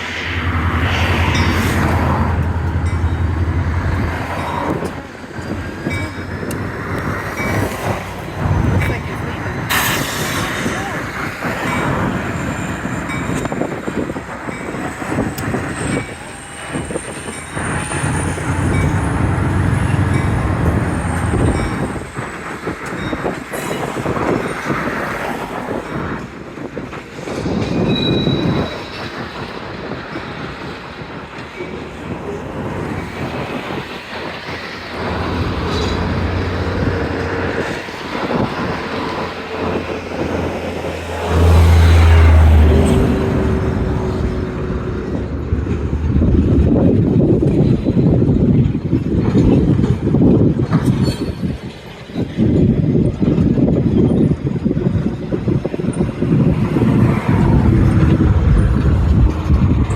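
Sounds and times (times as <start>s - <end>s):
high wheel squeal: 0.0s - 9.0s, 9.6s - 24.7s, 27.6s - 29.5s, 34.5s - 46.8s
freight cars rolling: 0.0s - 59.9s
wheels and couplers clanking: 34.6s - 52.0s.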